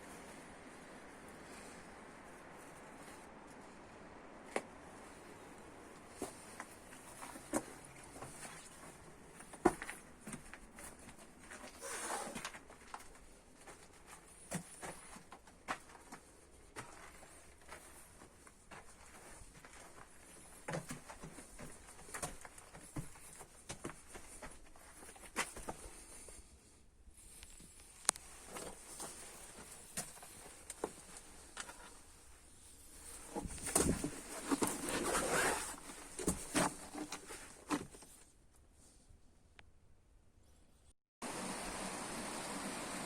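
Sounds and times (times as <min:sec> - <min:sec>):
quiet hiss: 0:00.0 - 0:37.0
rustling: 0:27.2 - 0:39.0.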